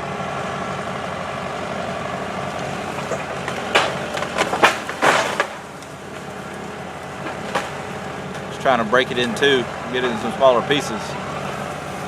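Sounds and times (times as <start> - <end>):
engine running: 0.0 - 12.0
wood cracking and snapping: 2.4 - 8.6, 11.4 - 12.0.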